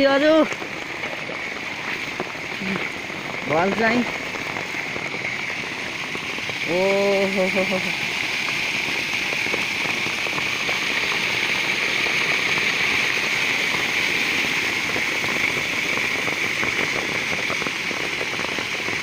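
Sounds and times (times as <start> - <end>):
floodwater rushing into pond: 0.0 - 19.0
heavy rain: 0.0 - 19.0
raindrops ticking close by: 0.0 - 19.0.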